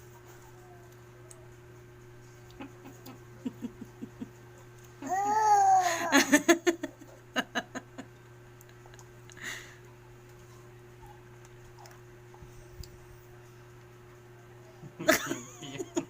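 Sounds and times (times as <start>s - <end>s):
person laughing: 2.5s - 4.4s, 5.7s - 8.1s, 14.9s - 16.0s.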